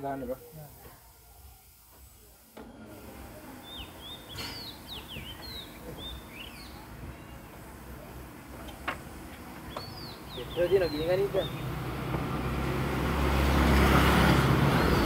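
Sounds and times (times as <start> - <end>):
small birds chirping: 3.5 - 7.8, 8.7 - 12.0, 14.4 - 15.0.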